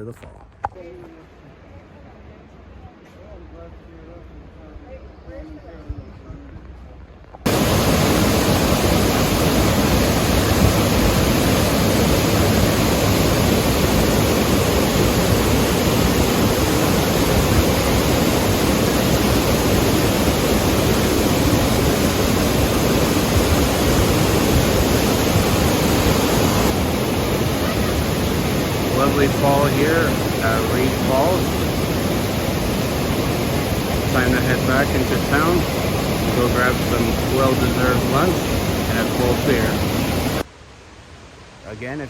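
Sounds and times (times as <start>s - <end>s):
waterfall rushing: 7.5s - 40.5s.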